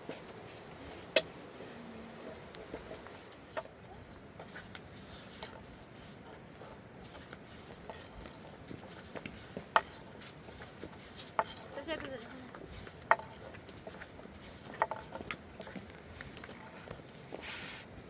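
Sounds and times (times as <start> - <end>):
low background noise: 0.0 - 18.0.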